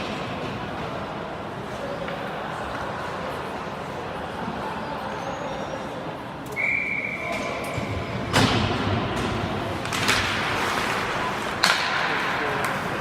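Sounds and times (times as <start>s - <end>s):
ice rink background noise: 0.0s - 13.0s
referee's whistle blast: 6.5s - 7.5s.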